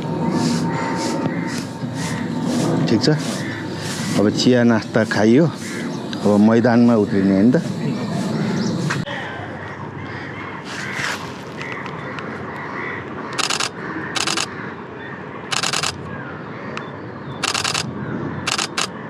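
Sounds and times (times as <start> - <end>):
camera shutter bursts: 13.4 - 14.5, 15.5 - 16.0, 17.4 - 17.9, 18.5 - 19.0.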